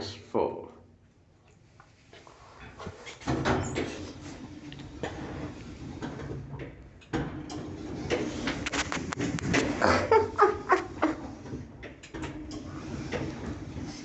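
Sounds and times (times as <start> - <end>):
lift clicks and rattles: 3.2 - 13.9
lift humming: 7.6 - 11.7.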